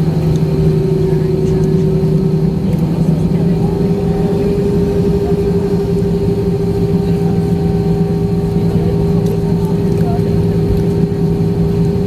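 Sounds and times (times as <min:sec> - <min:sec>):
steady even tones: 0:00.0 - 0:08.9
airliner cabin engine hum: 0:00.0 - 0:12.0.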